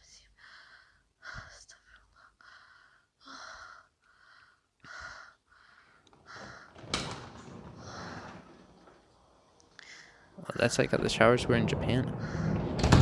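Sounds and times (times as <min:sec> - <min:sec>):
rushing noise: 0:10.4 - 0:13.0
sudden thump: 0:10.8 - 0:13.0.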